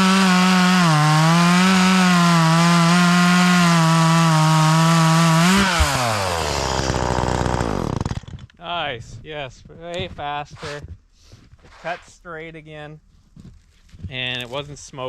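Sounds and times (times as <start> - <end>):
chainsaw cutting wood: 0.0 - 8.5.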